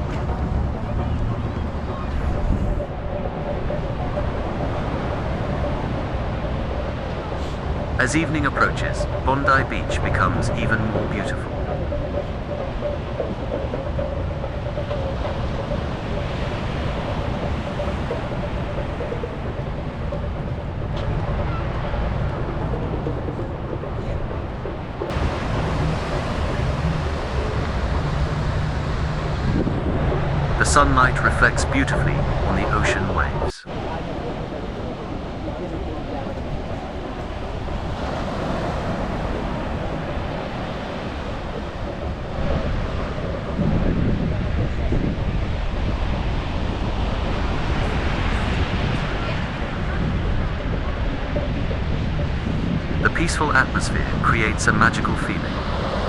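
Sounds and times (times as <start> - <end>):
ocean surf: 0.0 - 56.0
sea breeze: 0.0 - 56.0
wind buffeting microphone: 0.0 - 56.0.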